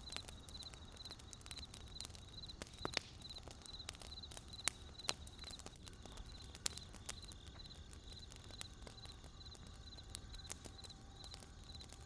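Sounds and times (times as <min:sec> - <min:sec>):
wood fire crackling and popping: 0:00.0 - 0:12.0
insect chirping: 0:00.1 - 0:05.5, 0:06.2 - 0:11.9.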